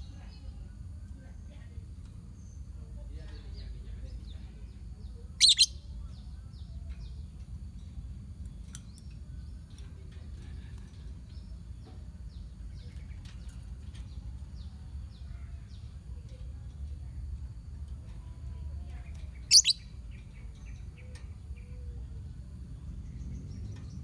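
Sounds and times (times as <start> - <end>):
lovebirds chattering: 0.0 - 7.0, 18.8 - 22.0
steady low rumble: 0.0 - 24.0
bird shrieking: 5.4 - 5.7, 19.5 - 19.8.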